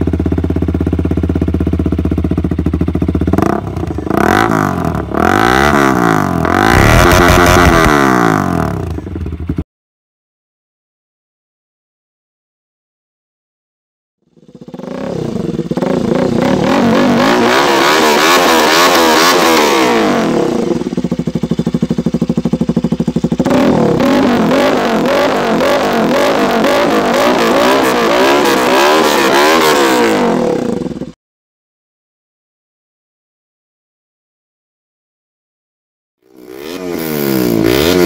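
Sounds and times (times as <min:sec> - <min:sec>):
engine idling: 0:00.0 - 0:09.6, 0:14.2 - 0:17.6, 0:20.0 - 0:27.8
motorcycle engine revving: 0:00.0 - 0:09.6, 0:14.2 - 0:31.2, 0:36.2 - 0:38.0.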